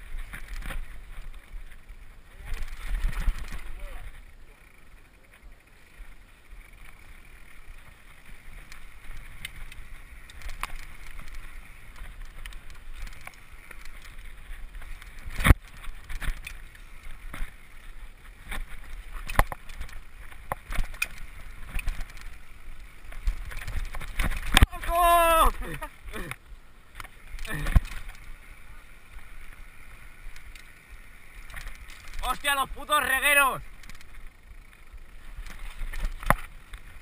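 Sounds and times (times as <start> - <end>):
bike tyre and frame rumble: 0.0 - 37.0
bike knocks and clicks: 8.6 - 14.2, 18.4 - 22.4, 35.3 - 37.0.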